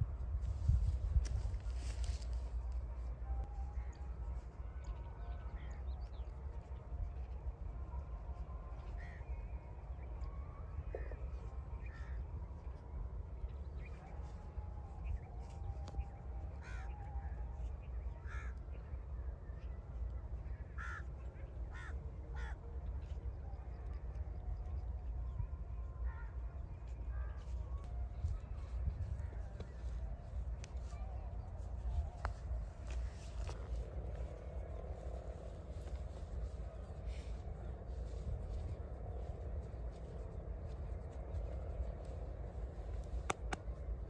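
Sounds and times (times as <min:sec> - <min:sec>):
steady low rumble: 0:00.0 - 0:44.0
birds cawing: 0:16.6 - 0:17.0, 0:18.2 - 0:18.6, 0:20.8 - 0:21.1, 0:21.7 - 0:22.6.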